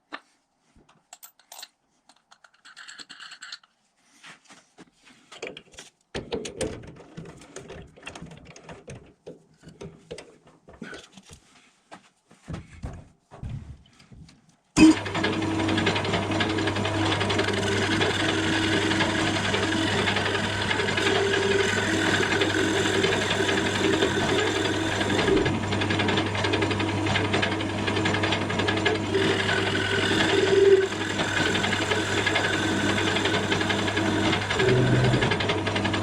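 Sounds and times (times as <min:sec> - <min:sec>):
electric lathe running: 0:14.8 - 0:36.0
cutting tool scraping wood: 0:17.1 - 0:25.5, 0:28.8 - 0:35.4.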